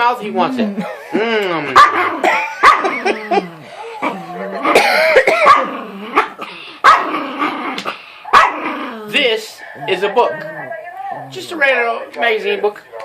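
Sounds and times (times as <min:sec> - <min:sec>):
dog barking and whining: 0:01.7 - 0:11.5.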